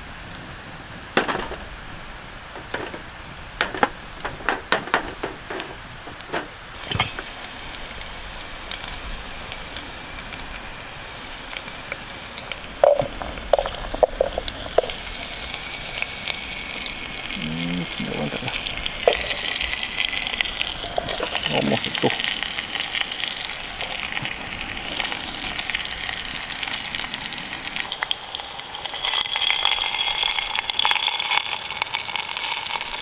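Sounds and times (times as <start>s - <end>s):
food sizzling over campfire: 0.0s - 33.0s
knocks and clinks: 1.2s - 1.8s, 2.5s - 7.4s, 12.8s - 15.0s.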